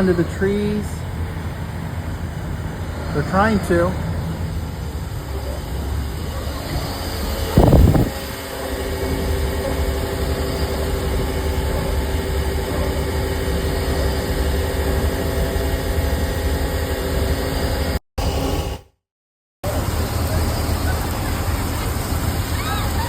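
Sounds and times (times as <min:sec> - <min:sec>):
storm noise hiss: 0:00.0 - 0:08.4.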